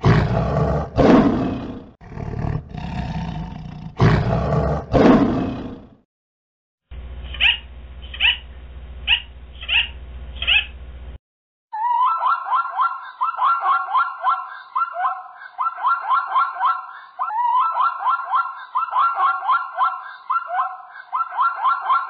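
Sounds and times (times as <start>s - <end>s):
parrot squawking: 7.3s - 8.5s, 9.1s - 10.8s
zebra barking: 7.4s - 8.4s.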